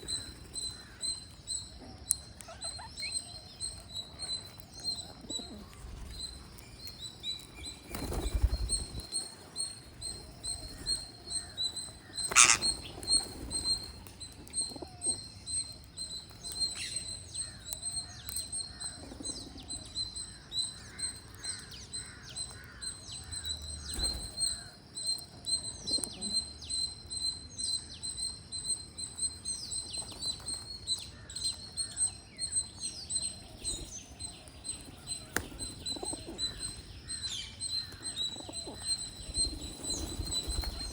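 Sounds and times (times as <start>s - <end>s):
parrots chirping and calling: 0.0s - 19.8s, 31.1s - 40.9s.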